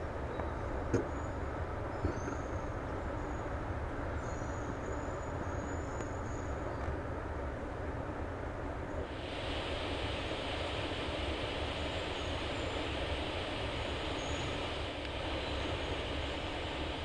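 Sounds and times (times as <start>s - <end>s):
jet engines idling: 2.7s - 17.0s.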